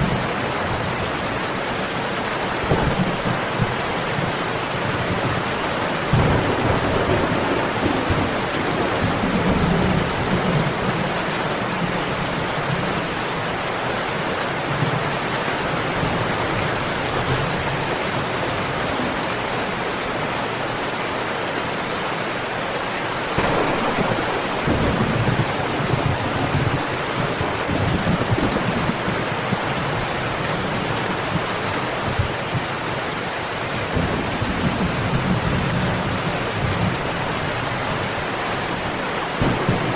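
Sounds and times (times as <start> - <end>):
heavy rain: 0.0 - 39.9
rolling thunder: 2.6 - 13.2, 23.4 - 30.0, 39.4 - 39.9.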